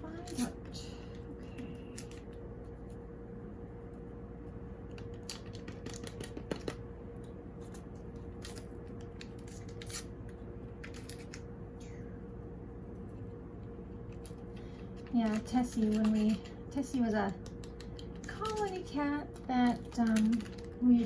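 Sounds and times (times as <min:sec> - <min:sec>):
steady low hum: 0:00.0 - 0:21.0
powder packets crinkling: 0:14.2 - 0:21.0.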